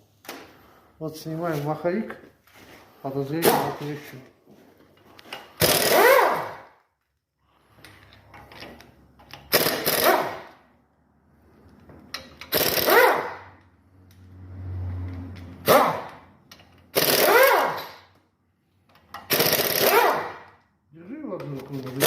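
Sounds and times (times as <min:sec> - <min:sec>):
impact wrench hammering: 0:05.5 - 0:06.7, 0:09.3 - 0:10.6, 0:12.2 - 0:13.5, 0:15.6 - 0:18.1, 0:19.1 - 0:20.6.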